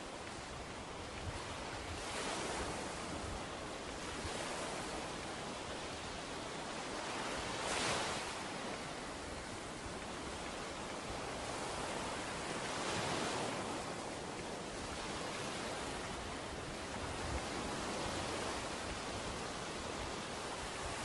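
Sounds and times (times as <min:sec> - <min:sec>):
ocean waves breaking on beach: 0:00.0 - 0:21.0.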